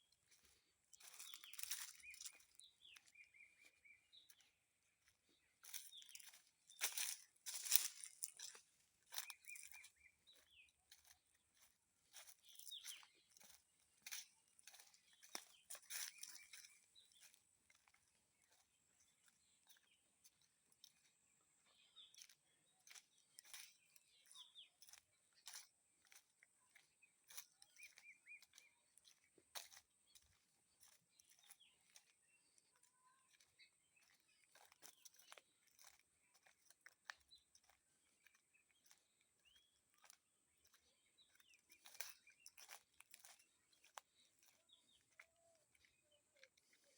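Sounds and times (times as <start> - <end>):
faint bird chirps: 0.1 - 46.9
crunching and crackling clicks: 1.0 - 2.6, 5.6 - 10.4, 12.1 - 17.9, 32.7 - 37.8, 38.8 - 45.9.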